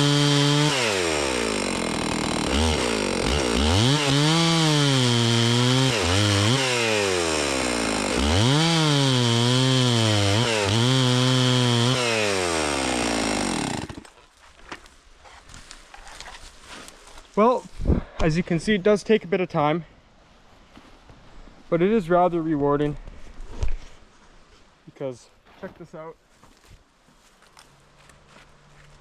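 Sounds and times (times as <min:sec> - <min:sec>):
chainsaw cutting log: 0:00.0 - 0:14.2.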